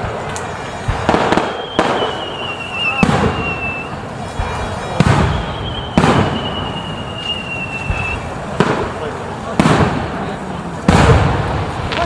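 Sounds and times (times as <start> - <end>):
fireworks booming: 0.0 - 12.0
high firework whistle: 1.0 - 9.0.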